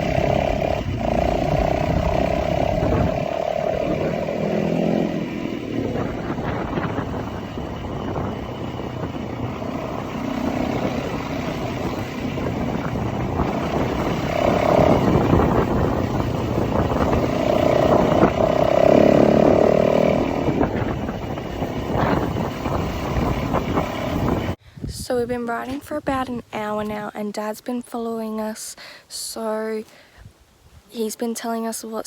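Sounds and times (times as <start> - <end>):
motorbike engine running: 0.0 - 24.6.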